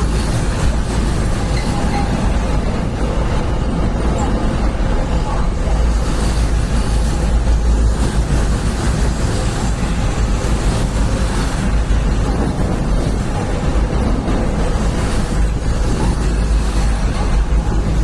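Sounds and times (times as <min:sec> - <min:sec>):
train passing at speed: 0:00.0 - 0:18.0.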